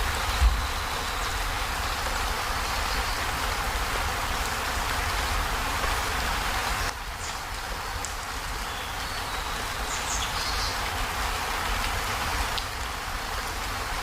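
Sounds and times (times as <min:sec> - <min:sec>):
heavy rain on a metal roof: 0:00.0 - 0:14.0.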